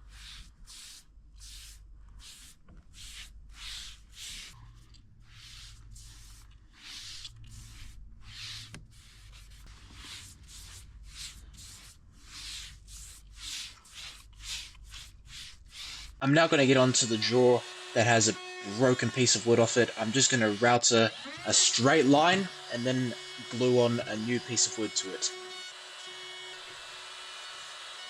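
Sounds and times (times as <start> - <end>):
hand rubbing wood surface: 0.0 - 16.2.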